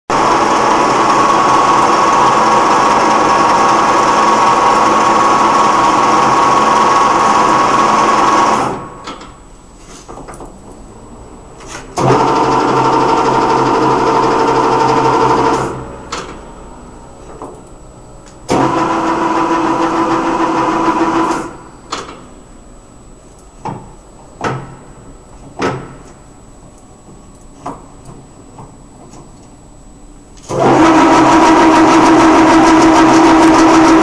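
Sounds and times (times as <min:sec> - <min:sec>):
lathe machine whine: 0:00.1 - 0:08.9, 0:12.0 - 0:15.9, 0:18.5 - 0:21.7, 0:30.5 - 0:34.0.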